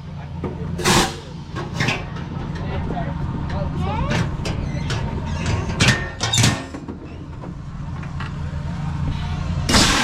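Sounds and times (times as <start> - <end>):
low mechanical hum: 0.0 - 10.0
cannon blast: 9.7 - 10.0.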